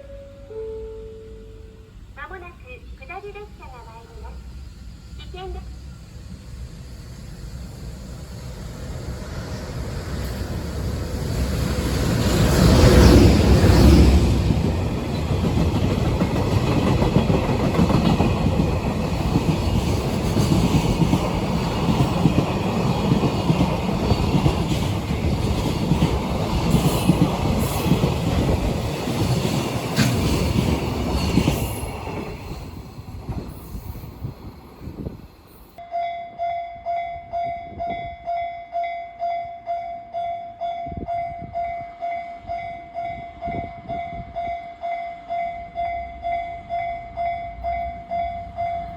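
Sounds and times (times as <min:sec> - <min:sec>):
train wheels rattling over rails: 0:07.0 - 0:35.8.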